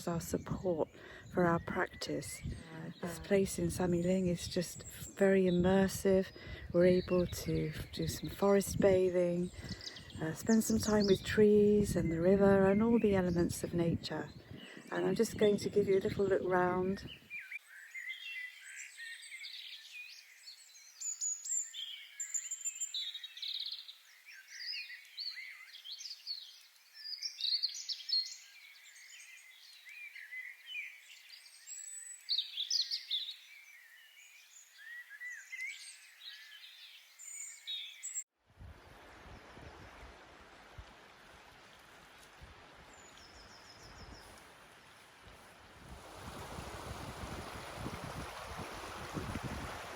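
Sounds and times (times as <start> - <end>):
small birds chirping: 0.0 - 38.3, 42.9 - 45.5.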